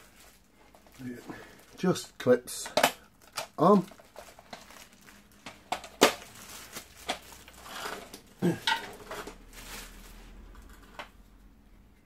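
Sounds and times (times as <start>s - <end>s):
hard plastic parts clacking: 2.5s - 4.7s, 5.4s - 6.3s, 7.0s - 9.4s.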